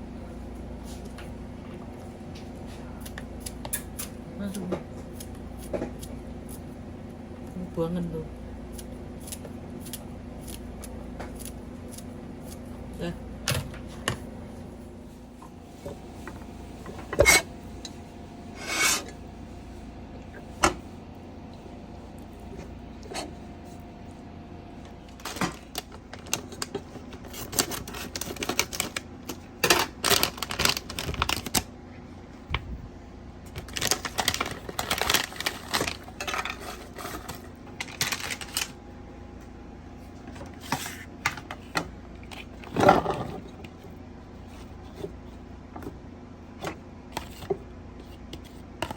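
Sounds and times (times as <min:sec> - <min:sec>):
faint steady hum: 0:00.0 - 0:48.9
utensils and dishes clattering: 0:35.7 - 0:38.4.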